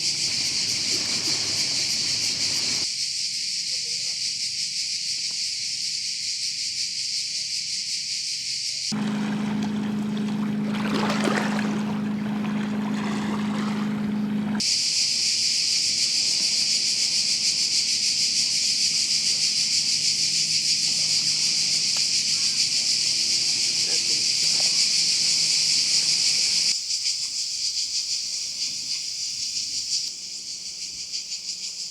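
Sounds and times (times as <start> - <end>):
high-pitched insect chorus: 0.0 - 9.0, 14.6 - 31.9
low motor-like hum: 8.9 - 14.6.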